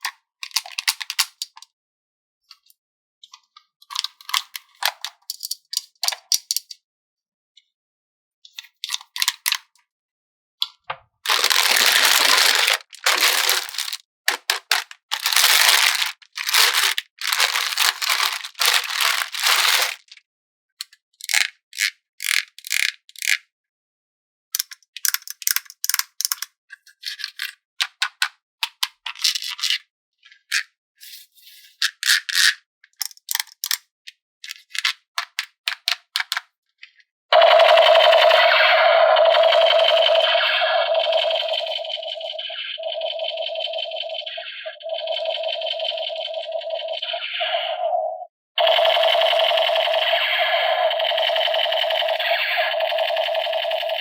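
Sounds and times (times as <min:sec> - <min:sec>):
plastic toy pieces clicking: 0:00.4 - 0:01.7, 0:03.9 - 0:06.8, 0:08.6 - 0:09.6, 0:11.3 - 0:20.2, 0:20.8 - 0:23.4, 0:24.6 - 0:29.8, 0:31.8 - 0:36.5
packaging rustling: 0:11.3 - 0:20.2.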